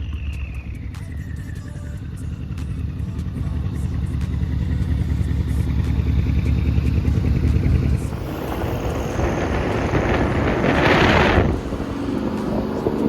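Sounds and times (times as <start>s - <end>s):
car engine running hard: 0.0s - 13.0s
rush of wind noise: 7.6s - 13.0s.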